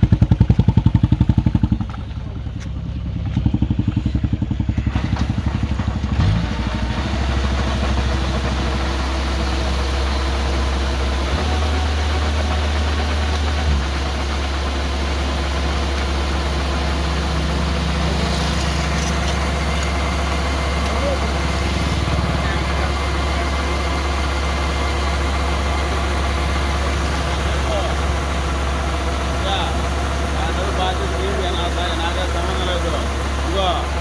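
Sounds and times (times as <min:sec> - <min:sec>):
diesel engine chugging: 0:00.0 - 0:34.0.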